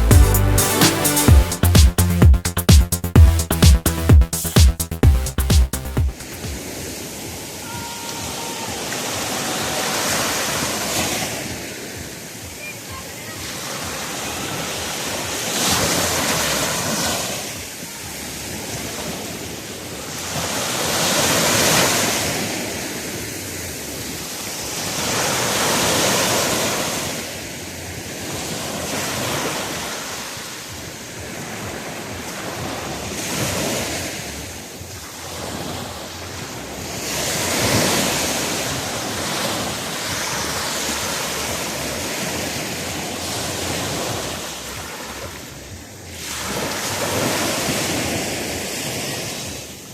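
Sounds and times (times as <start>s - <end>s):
ocean surf breaking: 5.3s - 17.8s, 20.4s - 23.5s, 24.3s - 27.4s, 28.1s - 45.5s, 46.1s - 49.9s.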